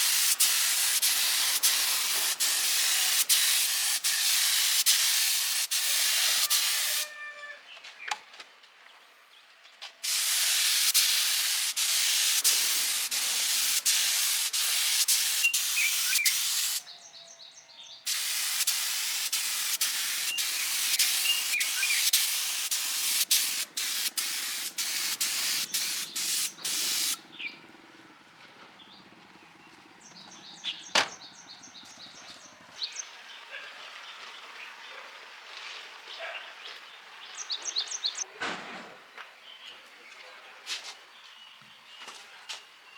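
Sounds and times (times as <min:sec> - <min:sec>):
compressed air hissing: 0:00.0 - 0:07.1, 0:10.0 - 0:16.8, 0:18.1 - 0:27.2.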